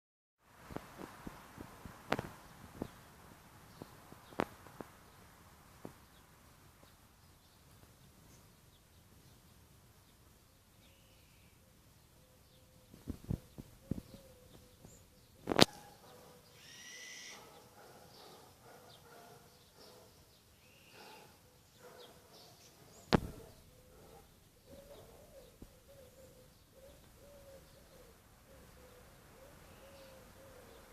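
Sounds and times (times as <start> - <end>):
faint bird calls: 10.8 - 30.9.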